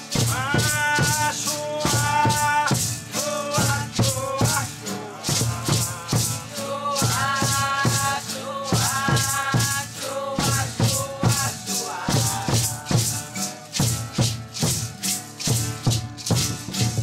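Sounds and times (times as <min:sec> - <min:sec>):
shaker rattles: 0:00.0 - 0:17.0
low drum beats: 0:10.4 - 0:17.0.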